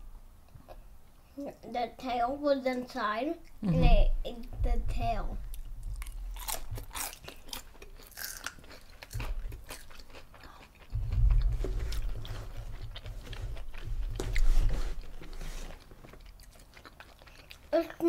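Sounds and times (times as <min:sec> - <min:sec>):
crunchy chewing of fried shrimp: 0:05.5 - 0:18.0
low rumble: 0:10.9 - 0:13.0.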